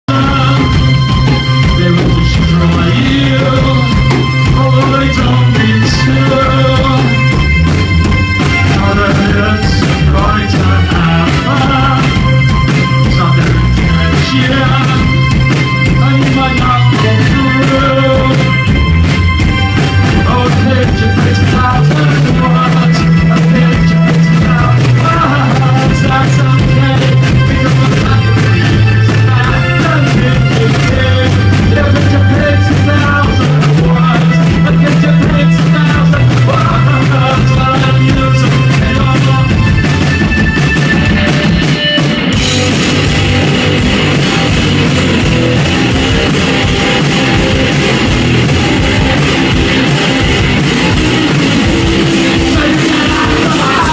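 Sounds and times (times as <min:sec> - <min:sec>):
rock music: 0:00.0 - 0:53.9.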